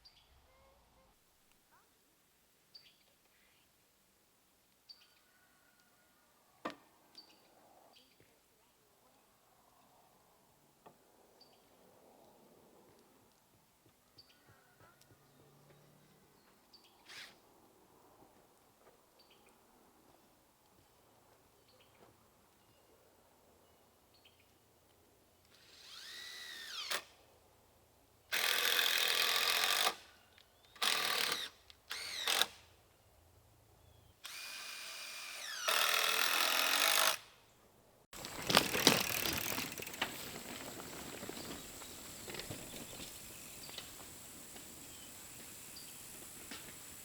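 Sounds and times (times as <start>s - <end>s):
power drill spinning: 25.6s - 27.1s, 28.3s - 30.0s, 30.8s - 32.6s, 34.2s - 37.2s, 38.2s - 47.0s.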